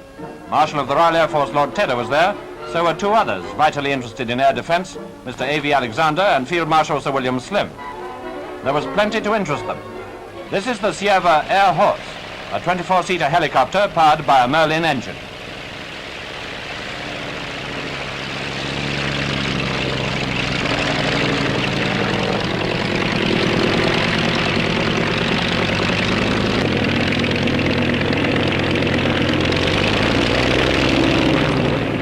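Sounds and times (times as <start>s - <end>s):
helicopter piston engine droning: 0.0s - 32.0s.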